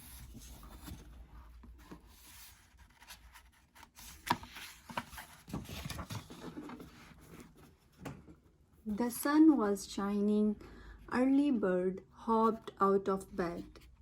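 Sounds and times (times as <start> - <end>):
book pages rustling: 0.0 - 8.1.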